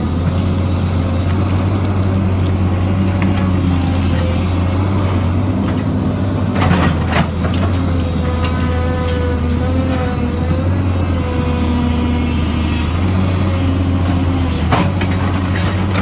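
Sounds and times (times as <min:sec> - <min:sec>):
heavy machine engine droning: 0:00.0 - 0:16.0
metal clanking and scraping: 0:14.1 - 0:16.0.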